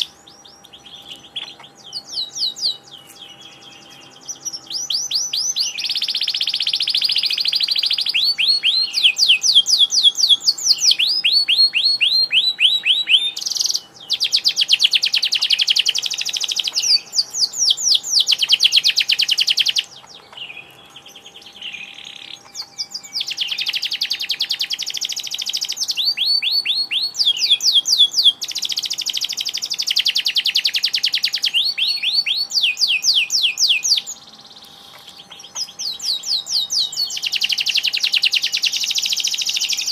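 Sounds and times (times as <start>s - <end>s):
canary singing trills: 0.0s - 39.9s
faint steady hum: 0.0s - 39.9s.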